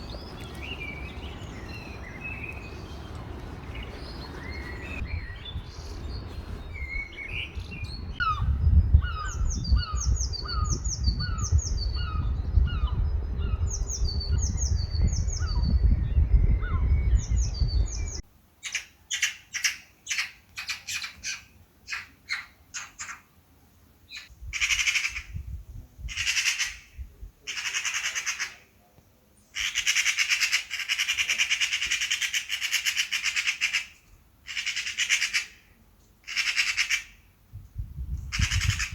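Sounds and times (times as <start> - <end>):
birds chattering squawks: 0.0 - 15.7, 26.0 - 28.7, 29.4 - 37.3, 38.2 - 38.9
low wind rumble: 0.0 - 18.2, 24.3 - 27.5, 37.3 - 38.9
birds ringing calls: 0.0 - 23.3, 38.2 - 38.9.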